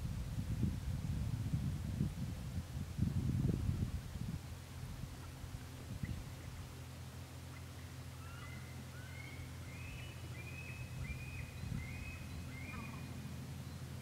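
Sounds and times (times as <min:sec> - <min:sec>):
steady low rumble: 0:00.0 - 0:08.3.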